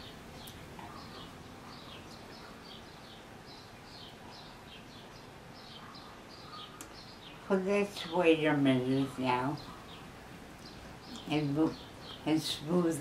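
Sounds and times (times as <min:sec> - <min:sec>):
low hiss: 0:00.0 - 0:13.0
small bird chirping: 0:00.0 - 0:13.0.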